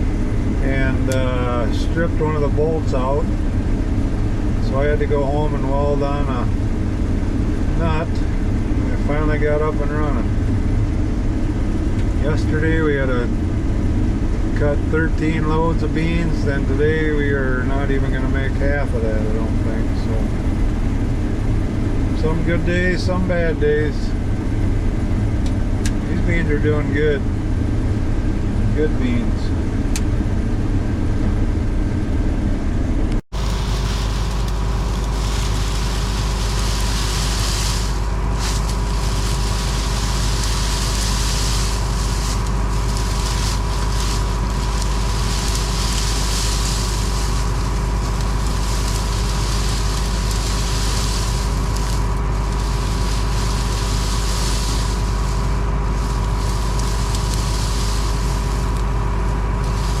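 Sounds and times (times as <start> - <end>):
combine harvester engine drone: 0.0 - 60.0
steady whine: 0.0 - 60.0
fluctuating hiss: 33.4 - 60.0.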